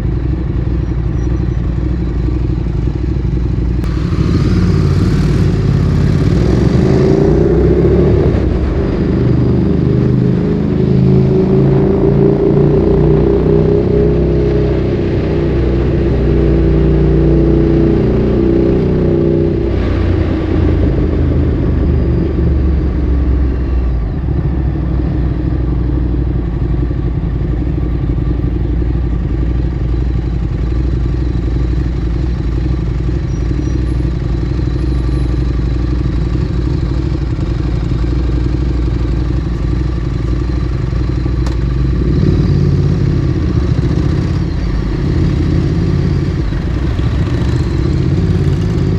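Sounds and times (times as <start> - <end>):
motorcycle engine idling: 0.0 - 7.0, 22.5 - 48.9.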